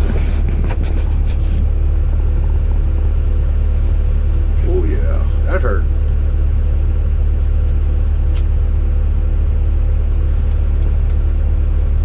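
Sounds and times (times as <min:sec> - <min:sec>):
engine droning: 0:00.0 - 0:12.0
sharp click: 0:08.3 - 0:08.5.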